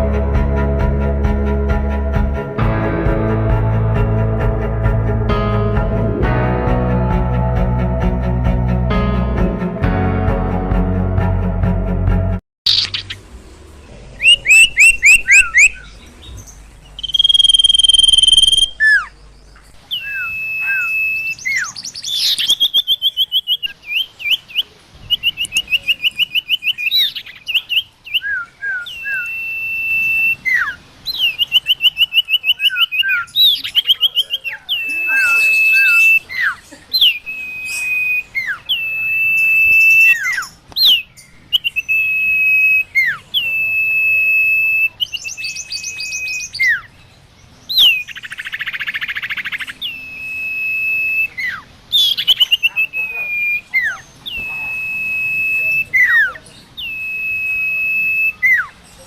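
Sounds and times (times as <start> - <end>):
bird calling with whistles and trills: 12.7 - 13.2, 14.2 - 59.0.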